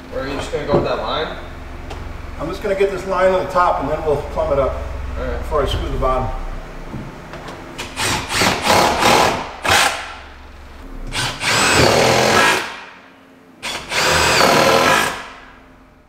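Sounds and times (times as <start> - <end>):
power drill driving screws: 7.8 - 10.1, 11.1 - 12.8, 13.6 - 15.3.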